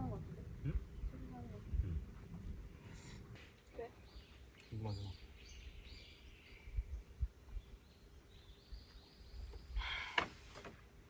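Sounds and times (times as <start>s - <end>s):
faint bird chirps: 2.7s - 10.4s.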